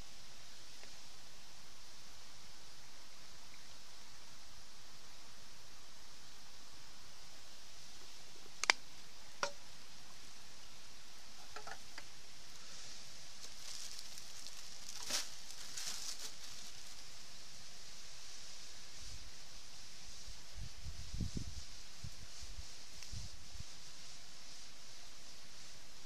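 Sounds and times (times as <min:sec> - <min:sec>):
campfire hissing: 0:00.0 - 0:26.0
fire popping and crackling: 0:13.4 - 0:17.0.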